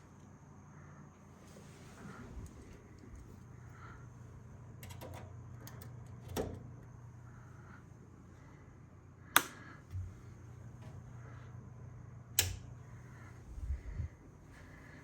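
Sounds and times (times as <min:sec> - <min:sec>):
steady low hum: 0:00.0 - 0:15.0
light clicks: 0:12.4 - 0:12.7.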